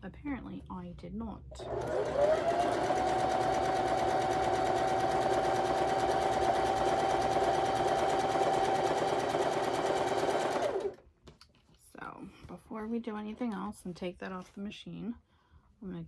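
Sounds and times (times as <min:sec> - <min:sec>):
sewing machine stitching: 0:01.5 - 0:11.0.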